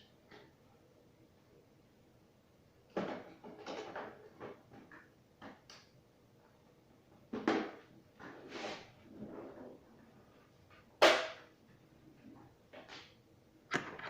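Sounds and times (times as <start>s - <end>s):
hard objects knocking and clattering: 2.9s - 5.6s, 13.7s - 14.0s.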